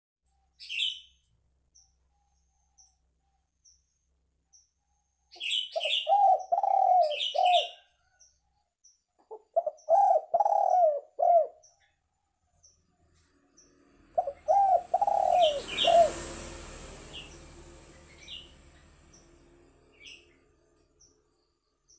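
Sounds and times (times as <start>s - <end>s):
small bird chirping: 0.3s - 21.9s
dove cooing: 5.8s - 7.9s, 9.3s - 11.7s, 14.1s - 16.5s.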